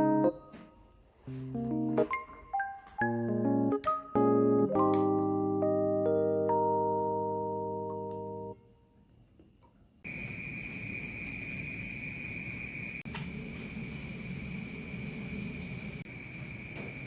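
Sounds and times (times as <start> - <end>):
insect chorus chirring: 10.1 - 17.0.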